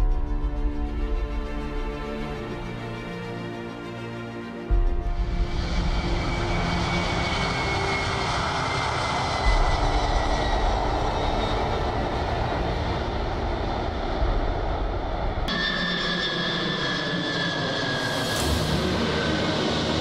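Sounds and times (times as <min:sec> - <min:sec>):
aircraft engines rumbling: 0:05.1 - 0:20.0.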